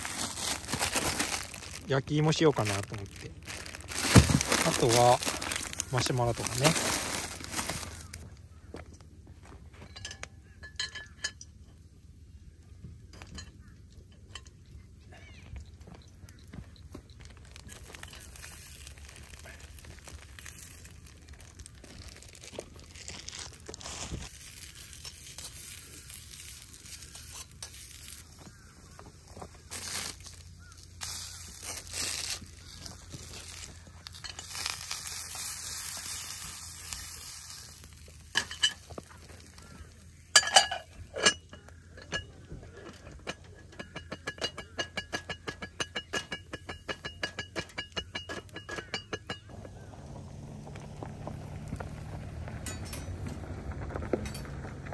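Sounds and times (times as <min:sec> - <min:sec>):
wood fire crackling: 0:00.0 - 0:08.5, 0:15.6 - 0:44.8, 0:46.1 - 0:54.9
sausages sizzling in skillet: 0:17.6 - 0:23.0, 0:24.3 - 0:40.4
cookware clanking on grill grate: 0:38.3 - 0:38.9, 0:40.3 - 0:49.9.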